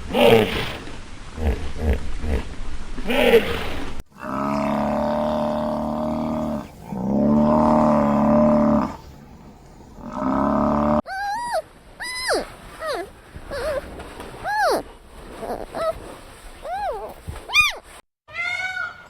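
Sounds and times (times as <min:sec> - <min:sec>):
large animal long calls: 0:03.1 - 0:09.1, 0:10.0 - 0:16.1
animal short swooping calls: 0:11.1 - 0:17.8.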